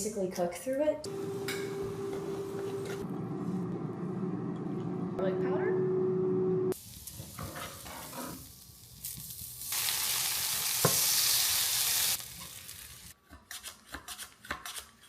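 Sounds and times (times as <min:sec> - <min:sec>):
potatoes sizzling in a pan: 0:06.8 - 0:13.2.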